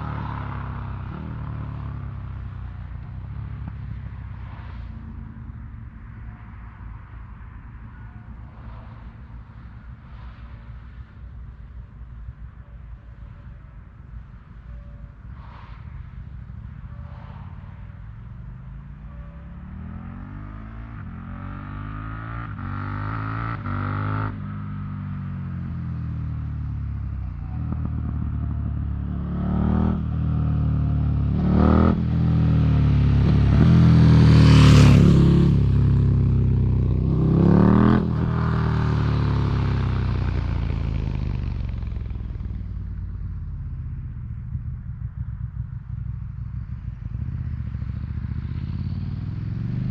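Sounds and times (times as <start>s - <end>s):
motorcycle engine accelerating: 19.1s - 49.9s.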